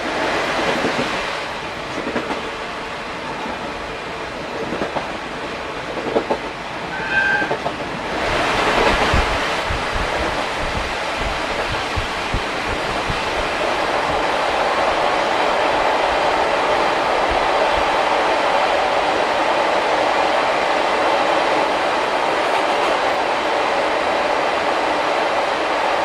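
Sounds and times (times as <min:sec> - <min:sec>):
train coach running noise: 0:00.0 - 0:26.0
short high note: 0:06.9 - 0:07.6.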